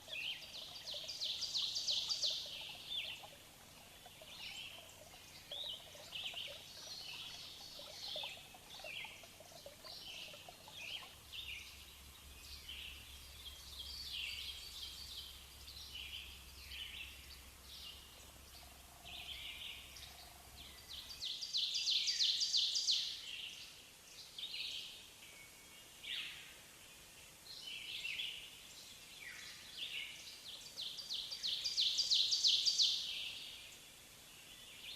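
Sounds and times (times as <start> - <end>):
birds chirping and singing: 0.0 - 11.8.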